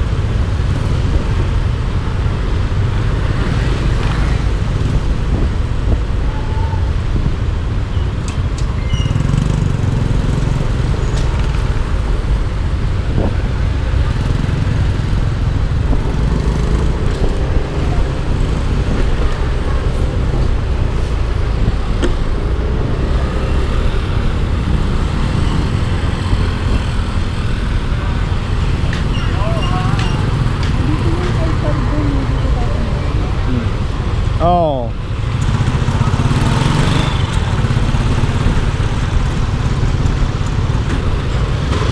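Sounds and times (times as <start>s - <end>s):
road traffic: 0.0s - 41.9s.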